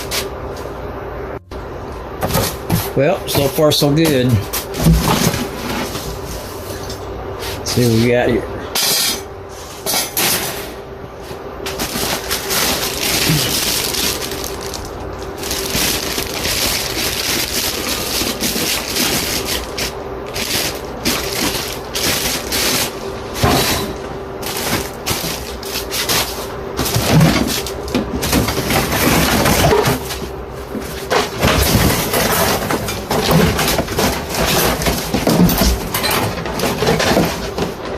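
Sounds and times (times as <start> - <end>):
packing materials crinkling: 11.6 - 23.4, 24.4 - 35.4.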